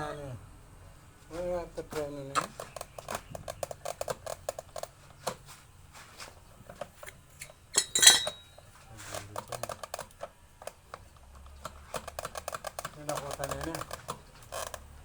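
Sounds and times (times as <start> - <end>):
metal tools clinking: 7.4 - 8.6
metallic clang: 7.7 - 8.5.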